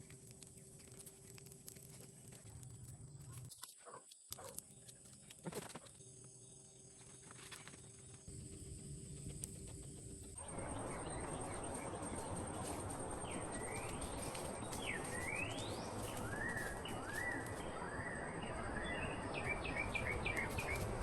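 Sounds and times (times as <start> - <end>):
birds calling and whistling: 10.4 - 21.0.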